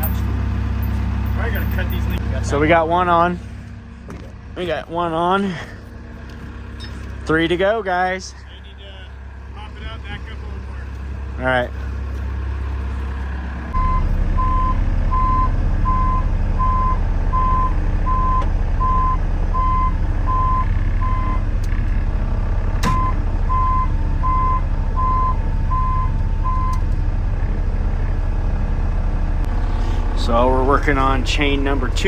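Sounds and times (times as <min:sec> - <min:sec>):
loader engine running: 0:00.0 - 0:32.0
backup alarm beeping: 0:13.8 - 0:21.4, 0:22.8 - 0:26.8.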